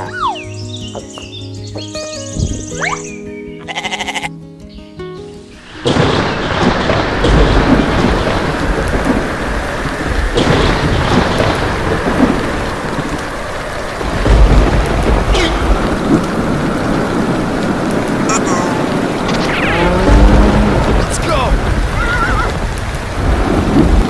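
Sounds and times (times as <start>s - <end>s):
heavy rain falling: 5.6s - 24.0s
thunder rolling: 5.8s - 24.0s.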